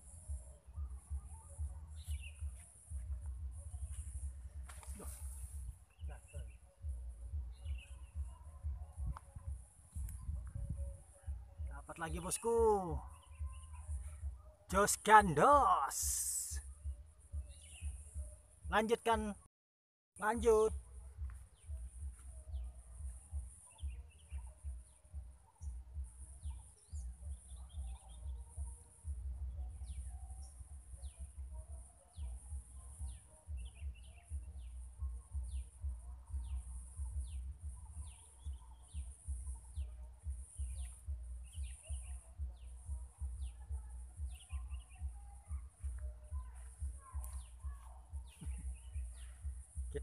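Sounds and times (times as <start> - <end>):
wind rumble on microphone: 0.0 - 14.5
birds twittering: 0.0 - 19.4, 20.2 - 50.0.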